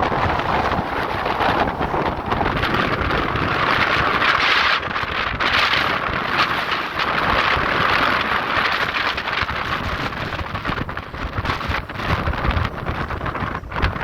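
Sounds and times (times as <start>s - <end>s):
strong wind against microphone: 0.0s - 14.0s.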